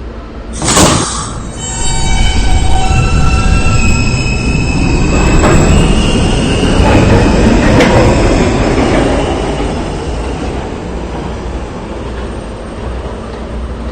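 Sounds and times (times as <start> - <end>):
subway train rumbling on rails: 0.0 - 13.9
steel wheels squealing: 0.6 - 10.4.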